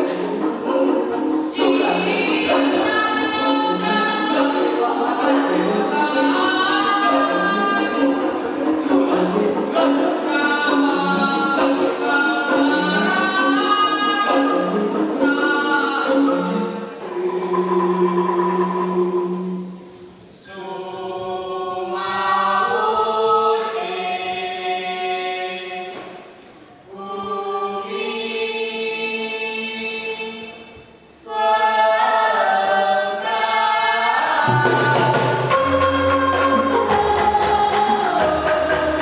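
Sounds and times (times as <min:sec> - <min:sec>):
low instrumental notes: 0:00.0 - 0:20.4, 0:34.5 - 0:39.0.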